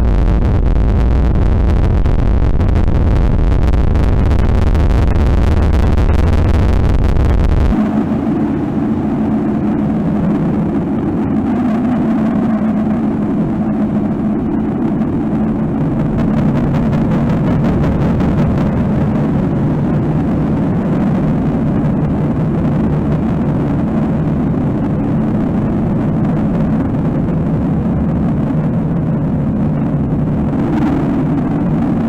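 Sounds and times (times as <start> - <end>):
low rumbling noise drone: 0.0 - 32.0.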